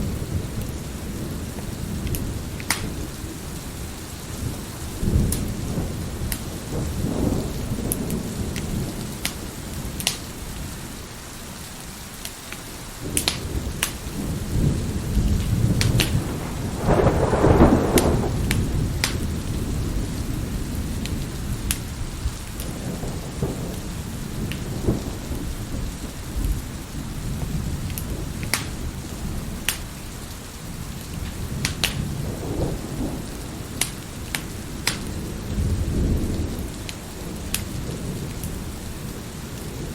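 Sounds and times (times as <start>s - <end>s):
rolling thunder: 0.0s - 11.1s, 13.0s - 39.9s
heavy rain: 0.0s - 39.9s
wood fire crackling: 1.5s - 3.8s, 12.2s - 14.2s, 15.2s - 23.3s, 24.4s - 32.1s, 33.4s - 35.6s.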